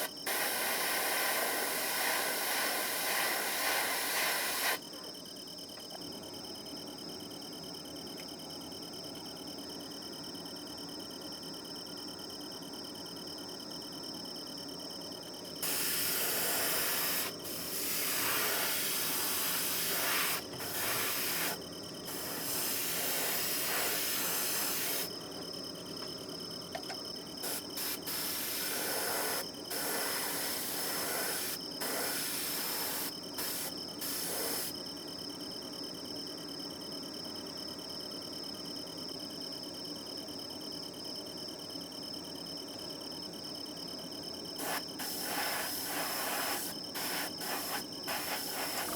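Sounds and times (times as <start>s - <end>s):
airbrush spraying: 0.0s - 4.8s, 15.6s - 25.1s, 27.4s - 34.7s, 44.6s - 48.9s.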